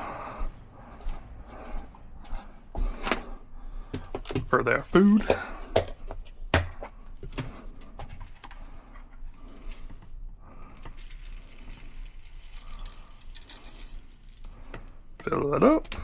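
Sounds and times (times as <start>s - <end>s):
birdseed pattering: 9.4s - 16.0s.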